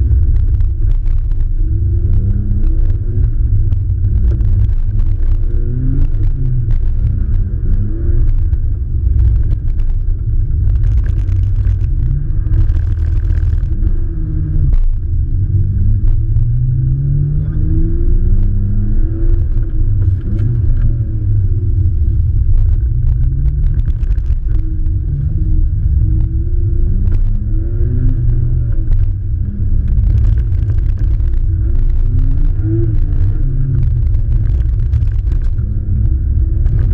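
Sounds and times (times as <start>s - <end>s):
muffled car engine revving: 0.0s - 36.9s.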